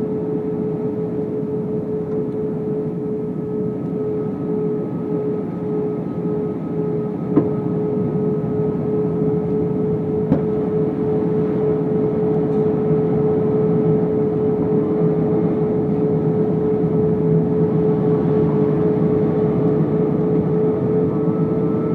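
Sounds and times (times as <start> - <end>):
aircraft cabin engine drone: 0.0 - 21.9
steady hum: 0.0 - 21.9.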